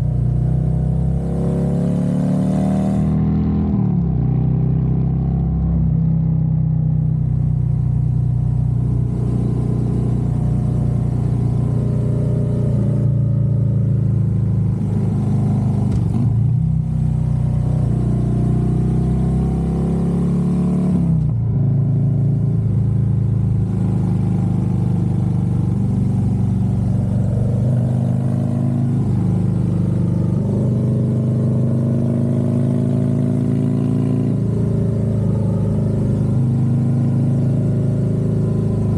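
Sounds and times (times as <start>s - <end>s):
motorcycle engine running: 21.3s - 38.9s.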